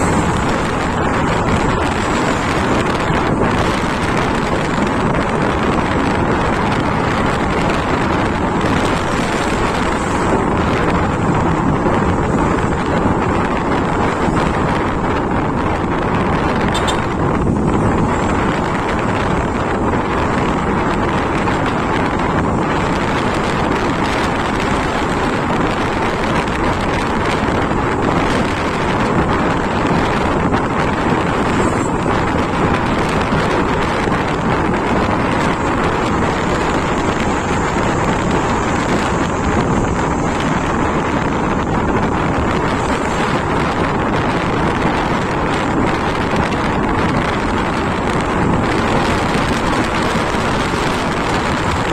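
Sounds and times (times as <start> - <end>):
motorcycle engine: 0.0 - 51.9
wind rushing over microphone: 0.0 - 51.9.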